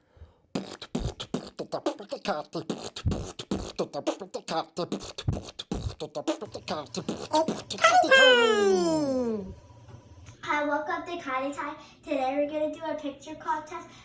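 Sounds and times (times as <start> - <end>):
person beatboxing: 0.6 - 8.2.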